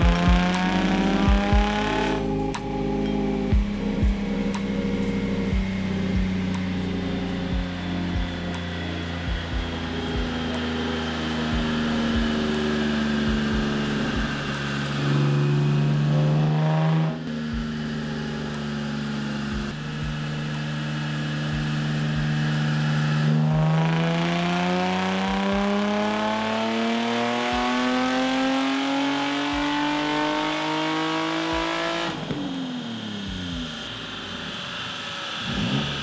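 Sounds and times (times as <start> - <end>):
car engine revving on a dyno: 0.0 - 36.0.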